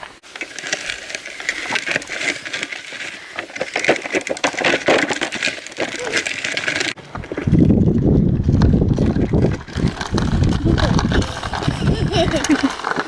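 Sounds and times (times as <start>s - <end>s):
dense irregular crackling: 0.2s - 13.0s
wind buffeting microphone: 7.0s - 12.8s.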